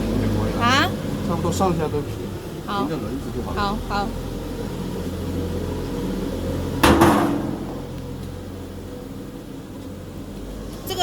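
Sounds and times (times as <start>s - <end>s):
low machine hum: 0.0s - 11.0s
loud clunk: 6.8s - 8.1s.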